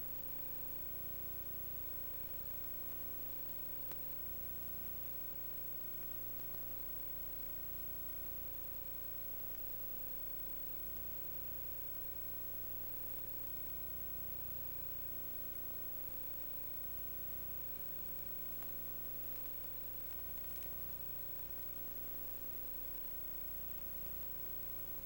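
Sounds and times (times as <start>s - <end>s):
electrical hum: 0.0s - 25.0s
faint click: 3.7s - 5.4s, 17.7s - 25.0s.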